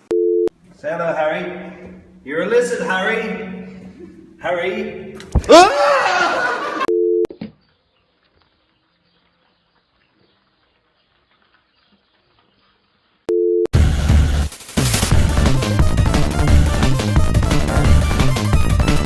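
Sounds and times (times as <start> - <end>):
loud music: 13.8 - 19.0.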